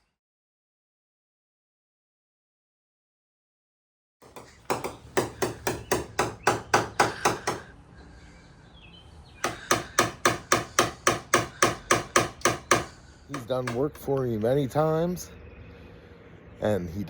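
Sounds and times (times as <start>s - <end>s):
hammer tapping metal panel: 4.2s - 7.7s, 9.4s - 14.0s.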